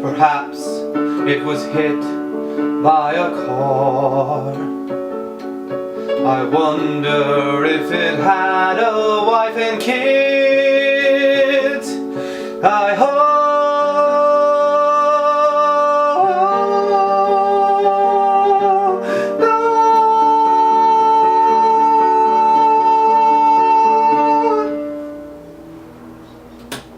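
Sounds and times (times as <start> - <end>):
man singing long wordless notes: 0.0 - 25.6
plucked-string accompaniment: 0.7 - 13.2.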